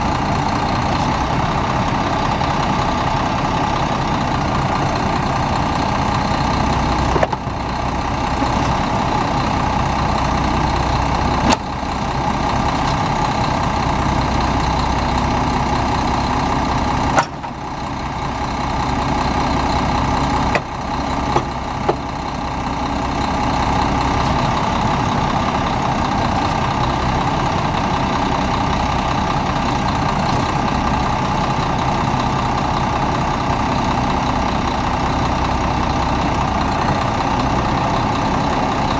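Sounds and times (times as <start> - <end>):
diesel truck idling: 0.0 - 38.9.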